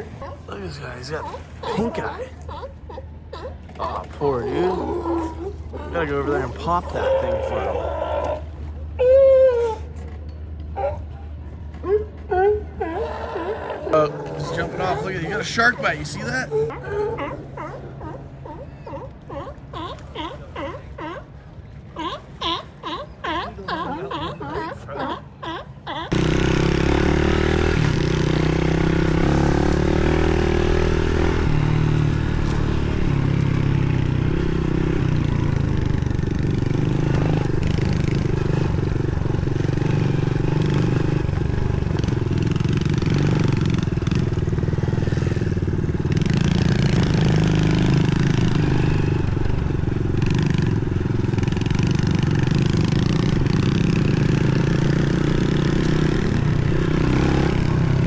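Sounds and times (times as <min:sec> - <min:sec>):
motorbike engine revving: 0:13.0 - 0:16.8, 0:26.0 - 0:58.0.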